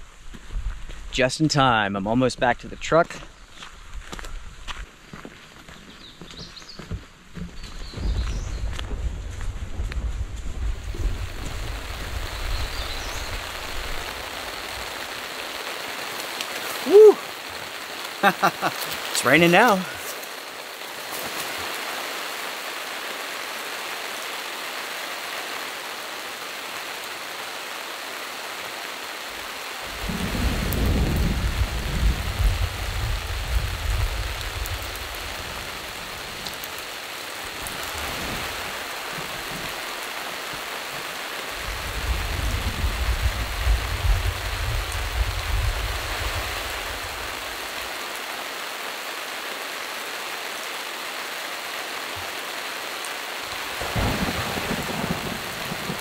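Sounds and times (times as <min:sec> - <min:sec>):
rain on a tarp: 0:07.6 - 0:56.0
thunder rolling: 0:08.0 - 0:14.1, 0:29.9 - 0:35.4, 0:41.6 - 0:46.3, 0:53.8 - 0:56.0.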